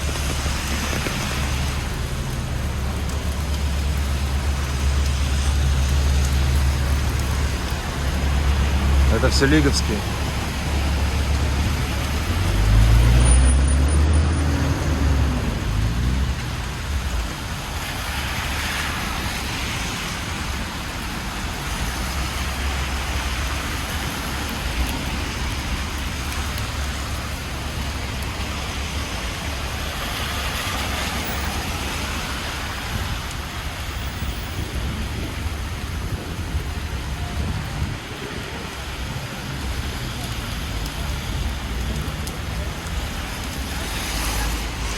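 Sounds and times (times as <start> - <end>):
heavy vehicle engine passing: 0.0 - 16.8
cars passing: 0.0 - 44.9
tyres hissing on wet road: 0.0 - 44.9.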